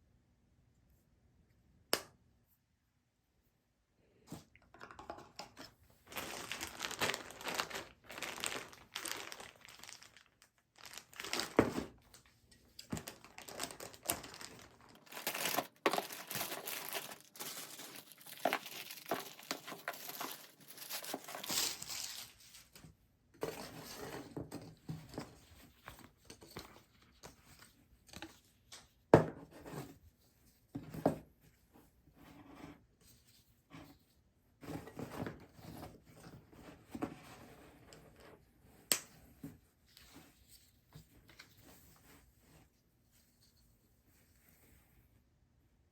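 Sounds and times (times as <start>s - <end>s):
packaging crinkling and rustling: 5.5s - 22.8s.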